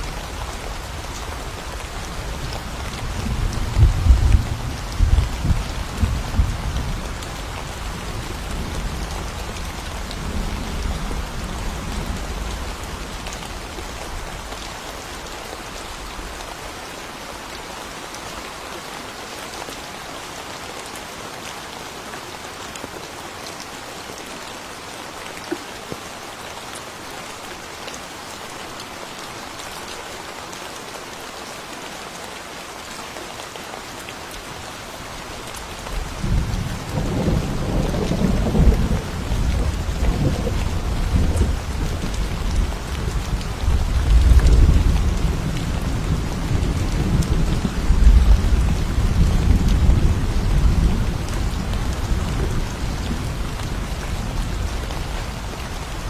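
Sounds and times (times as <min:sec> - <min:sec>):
rain falling: 0:00.0 - 0:56.0
thunder rumbling: 0:36.1 - 0:54.8.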